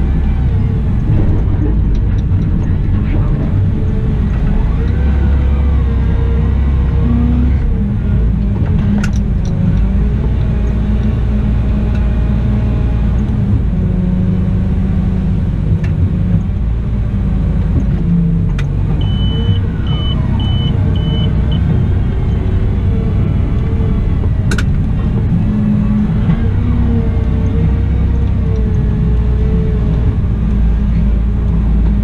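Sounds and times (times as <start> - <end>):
wheel loader diesel engine: 0.0 - 32.0
short high beeps: 19.0 - 21.6.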